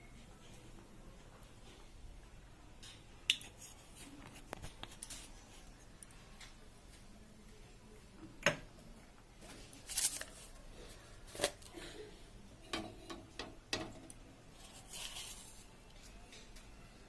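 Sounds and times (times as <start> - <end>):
scraping rustle: 14.6 - 15.7.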